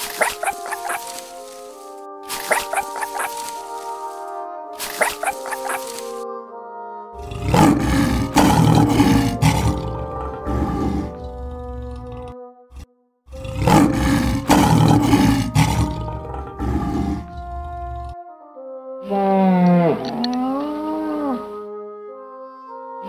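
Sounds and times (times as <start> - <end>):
background music: 0.0 - 23.0
lion roaring: 7.2 - 18.2.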